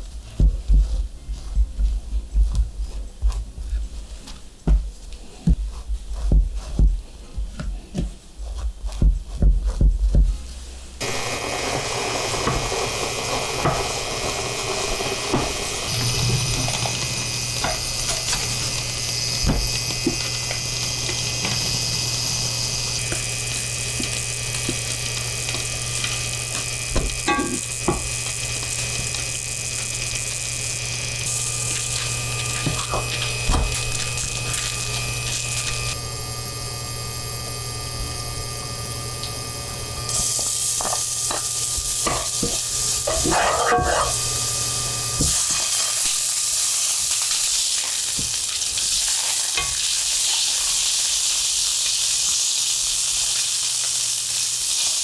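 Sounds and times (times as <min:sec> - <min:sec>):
low hum: 0:10.5 - 0:45.3
butter sizzling in a frying pan: 0:11.0 - 0:55.0
chicken frying: 0:11.0 - 0:55.0
spatula scraping and knocking pan: 0:23.0 - 0:29.3, 0:40.8 - 0:44.3.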